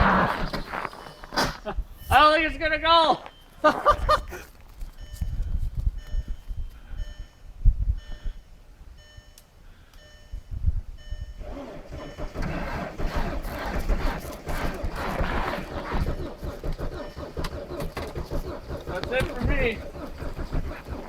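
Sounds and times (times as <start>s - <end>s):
electronic warning chime beeping: 5.0s - 12.4s
diesel engine cranking on starter: 11.3s - 21.0s.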